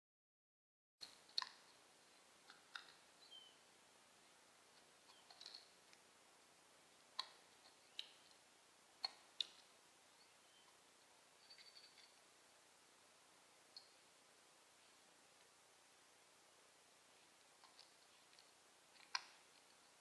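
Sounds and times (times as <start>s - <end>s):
bird chirps: 3.2s - 3.6s, 5.0s - 5.6s, 7.6s - 8.3s, 9.0s - 10.8s, 11.4s - 12.2s
faint sharp clicks: 17.4s - 20.0s.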